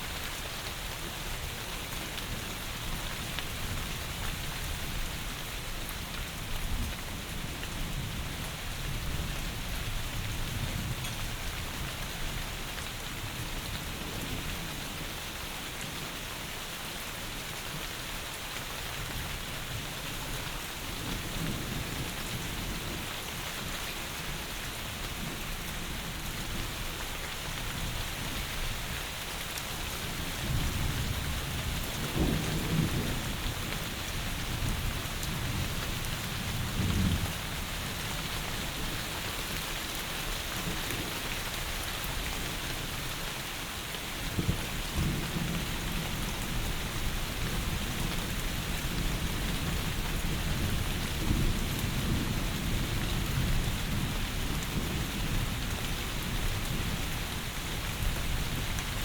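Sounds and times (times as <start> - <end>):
heavy rain falling: 0.0 - 59.0
distant thunder rumbles: 30.4 - 33.9.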